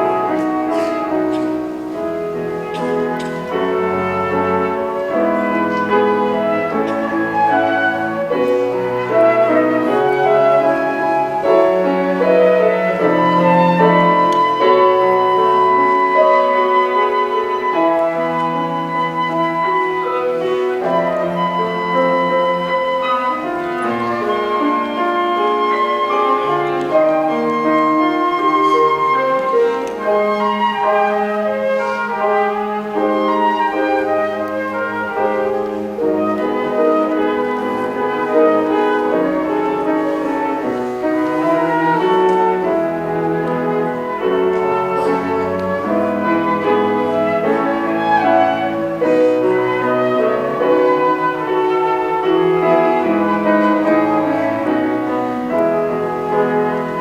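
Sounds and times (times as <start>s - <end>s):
flute: 0.0s - 57.0s
low cello notes: 0.0s - 57.0s
piano: 0.0s - 57.0s.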